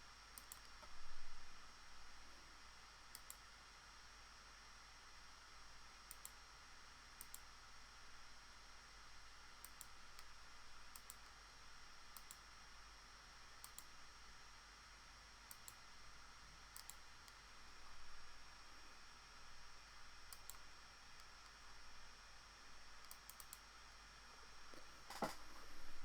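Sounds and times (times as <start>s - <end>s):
computer mouse clicks: 0.4s - 0.9s, 3.1s - 3.4s, 6.1s - 6.4s, 7.2s - 7.5s, 9.6s - 10.3s, 10.9s - 11.3s, 12.1s - 12.4s, 13.6s - 13.9s, 15.5s - 15.8s, 16.7s - 17.4s, 20.3s - 20.6s, 23.0s - 23.7s.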